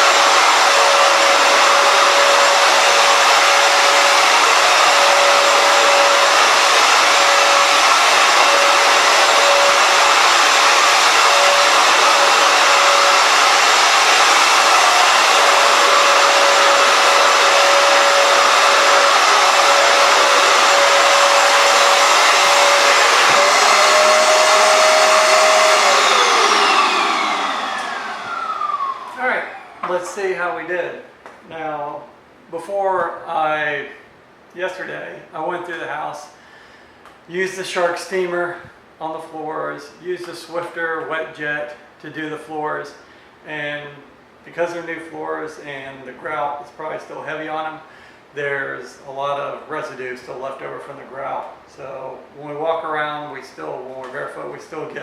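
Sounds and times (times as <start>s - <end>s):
floor cleaner whining: 0.0s - 30.3s.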